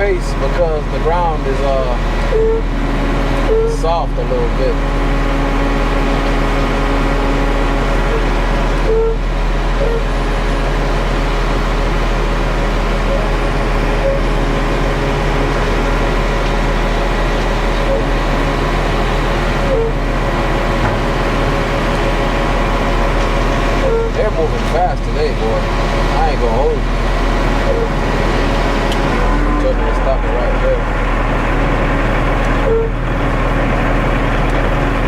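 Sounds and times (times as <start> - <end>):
diesel truck engine droning: 0.0 - 35.0.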